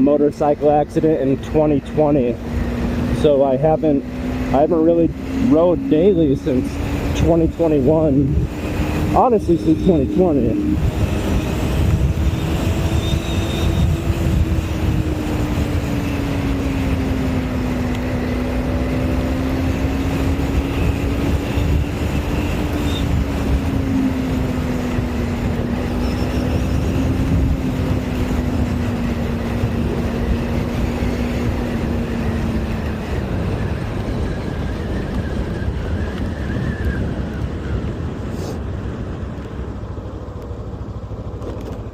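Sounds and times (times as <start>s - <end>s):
motorcycle engine cruising: 0.0s - 41.9s
wind rumble on microphone: 0.0s - 41.9s.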